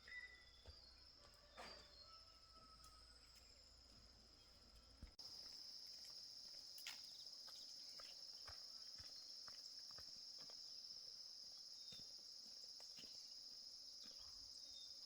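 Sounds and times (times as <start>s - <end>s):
crickets chirring: 3.0s - 15.0s.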